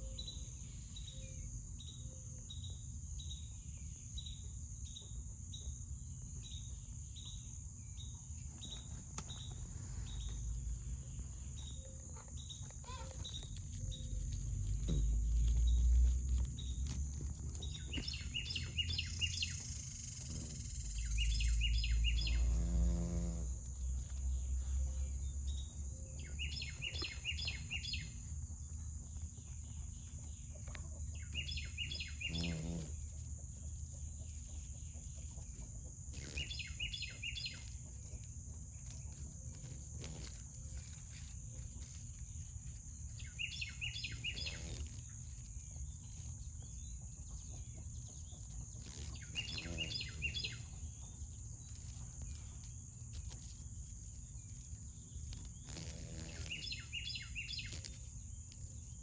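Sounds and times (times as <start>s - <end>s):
bird chirping: 0.0s - 59.0s
high-pitched insect buzz: 10.2s - 28.4s, 31.2s - 33.8s, 36.1s - 47.0s, 48.2s - 59.0s
farm animal low call: 32.1s - 33.0s.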